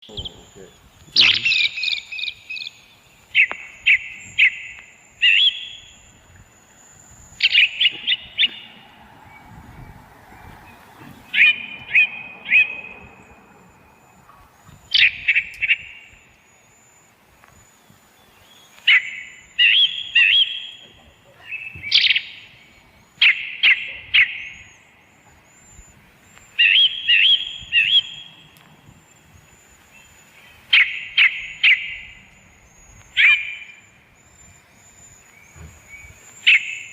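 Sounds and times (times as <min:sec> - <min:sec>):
bird chirping: 0:00.0 - 0:36.9.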